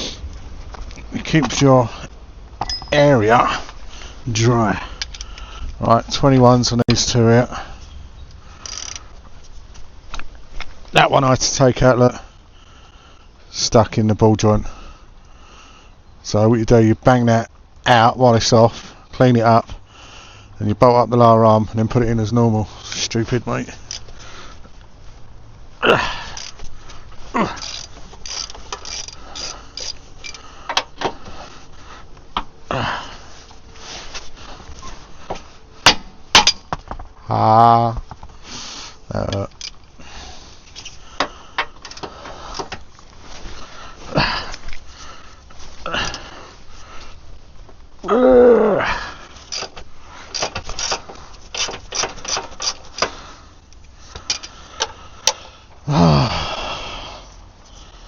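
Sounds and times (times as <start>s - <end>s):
metallic clicks of hand tools: 5.0s - 5.5s, 8.6s - 9.0s, 27.6s - 30.9s, 49.5s - 55.4s
metallic clicks and ratchet ticking: 8.6s - 9.0s, 27.6s - 30.9s, 39.3s - 39.8s
strained vocal groan: 25.8s - 26.4s, 48.0s - 49.2s, 55.8s - 57.3s.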